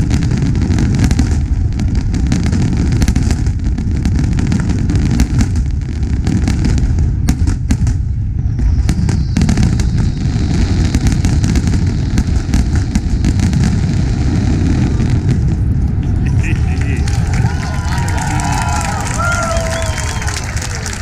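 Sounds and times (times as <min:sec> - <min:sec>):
fireworks bangs and crackling: 0:00.0 - 0:21.0
firework whistle: 0:08.4 - 0:12.0, 0:16.2 - 0:21.0
heavy low rumble: 0:10.1 - 0:21.0.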